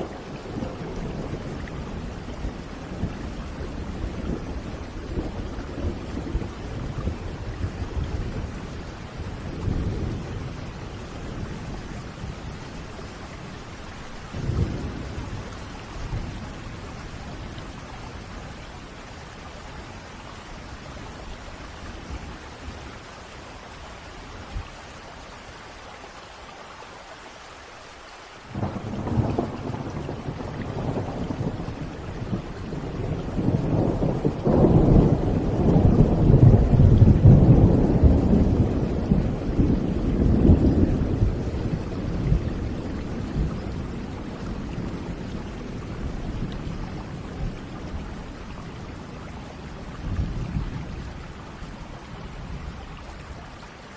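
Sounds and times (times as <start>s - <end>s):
steady rain: 0.0s - 53.9s
rolling thunder: 14.3s - 18.4s, 28.5s - 49.2s.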